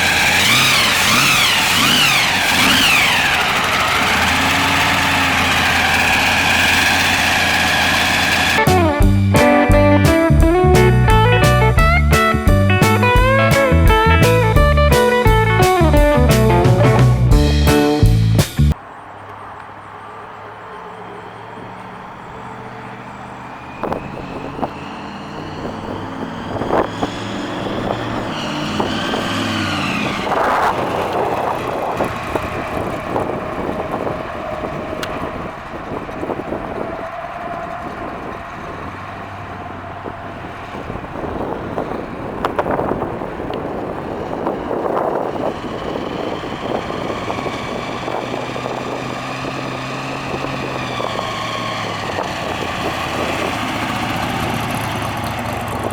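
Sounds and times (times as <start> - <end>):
car engine accelerating: 0.0 - 55.9
wind noise on microphone: 23.8 - 55.9.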